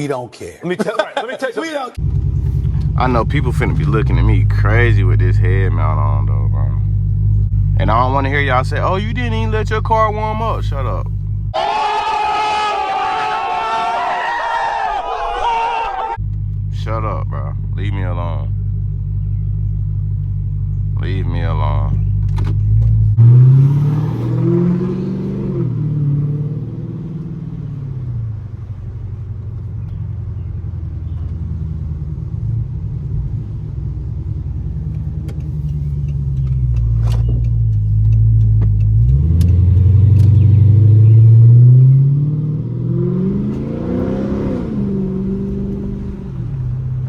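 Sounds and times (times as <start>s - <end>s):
car engine accelerating: 2.0s - 11.6s, 16.1s - 47.0s
car engine revving: 2.0s - 11.6s, 16.0s - 47.0s
car exhaust drone: 2.0s - 12.6s, 16.1s - 47.0s.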